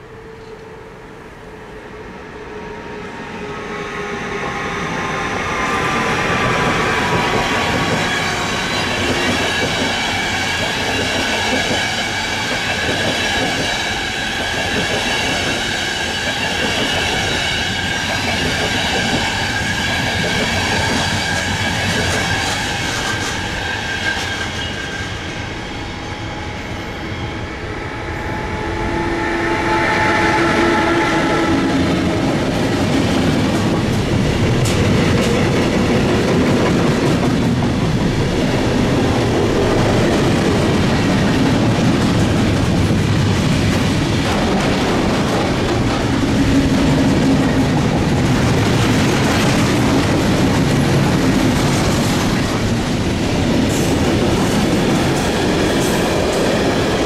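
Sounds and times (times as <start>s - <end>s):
train rolling through station: 0.0s - 57.0s
steady high tones: 23.5s - 33.0s.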